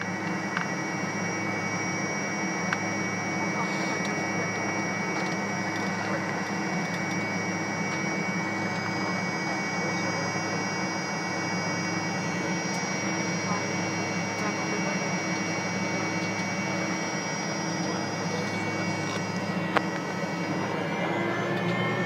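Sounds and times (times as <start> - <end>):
airliner cabin drone: 0.0 - 22.0
thin steady whine tones: 0.0 - 22.0.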